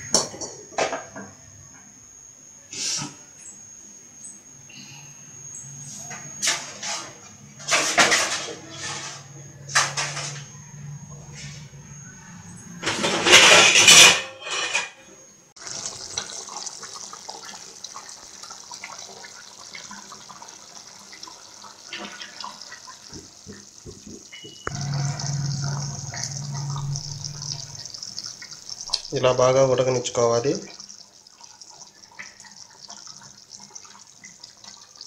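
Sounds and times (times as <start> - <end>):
curry bubbling and popping: 15.6 - 35.0
splashing in a pan: 15.6 - 35.0.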